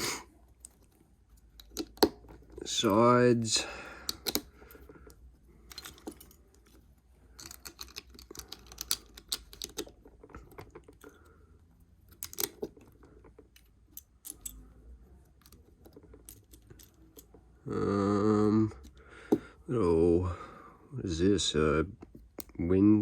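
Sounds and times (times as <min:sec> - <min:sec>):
plastic bricks clicking and rattling: 0:00.6 - 0:02.8, 0:07.3 - 0:11.2, 0:12.0 - 0:14.6.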